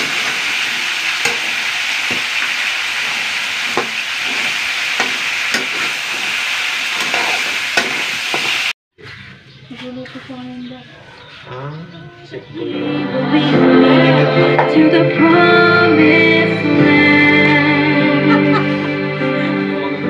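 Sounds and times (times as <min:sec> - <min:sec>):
crabs sizzling in a wok: 0:00.0 - 0:08.8
spatula clacking against pan: 0:01.2 - 0:02.5, 0:05.0 - 0:05.9, 0:07.0 - 0:08.6.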